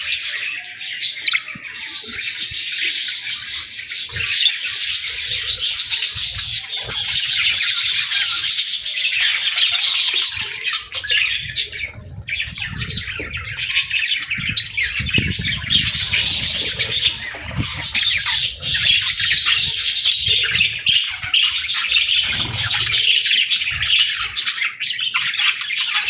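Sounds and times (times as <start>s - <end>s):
budgerigars chattering and chirping: 0.0s - 26.0s.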